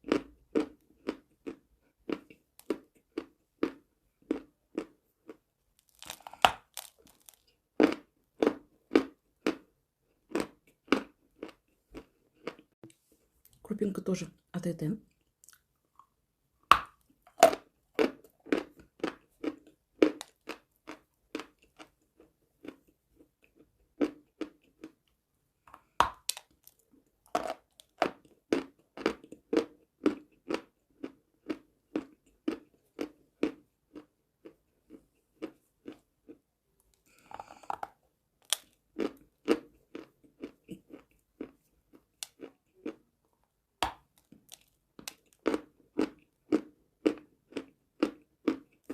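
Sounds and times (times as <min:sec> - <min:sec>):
rhythmic chewing: 0:00.0 - 0:13.1, 0:25.7 - 0:43.1, 0:43.9 - 0:48.9.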